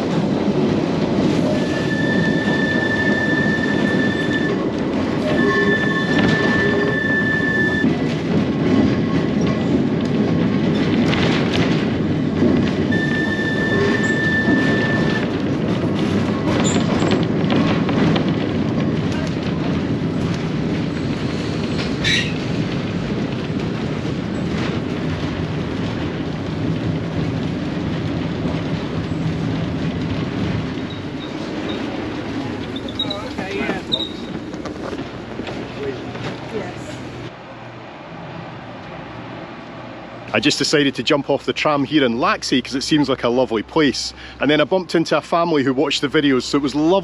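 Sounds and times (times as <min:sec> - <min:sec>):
tram wheels rumbling on rail: 0:00.0 - 0:47.0
high wheel squeal: 0:01.4 - 0:08.0, 0:12.9 - 0:15.4, 0:21.4 - 0:22.4, 0:32.7 - 0:34.4.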